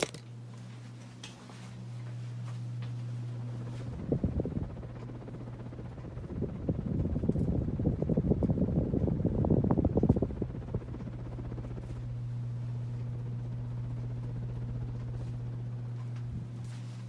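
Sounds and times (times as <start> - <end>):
ceiling fan motor hum: 0.0 - 17.0
air buffeting microphone: 1.8 - 17.0.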